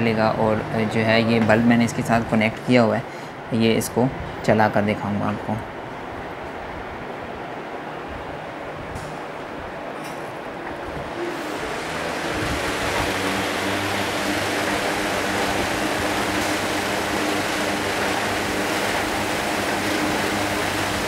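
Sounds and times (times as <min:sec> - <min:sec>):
fan blowing air: 0:00.0 - 0:21.0
low motor hum: 0:08.6 - 0:21.0.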